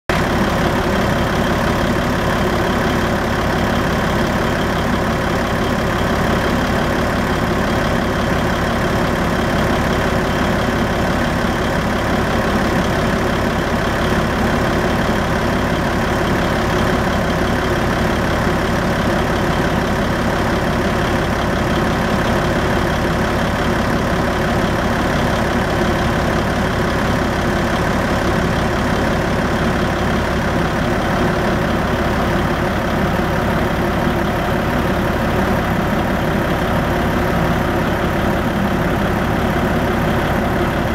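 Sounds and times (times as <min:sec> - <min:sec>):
truck diesel engine idling: 0:00.1 - 0:40.9.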